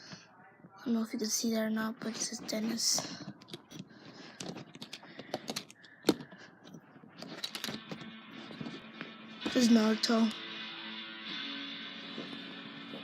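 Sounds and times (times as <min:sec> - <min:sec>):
plastic toys clicking: 0:02.1 - 0:06.4, 0:07.2 - 0:08.0.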